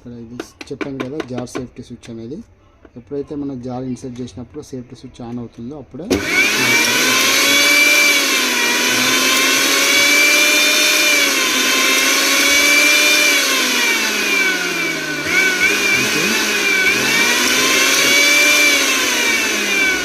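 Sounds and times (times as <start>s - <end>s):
mixer grinder motor whining: 6.1s - 20.0s.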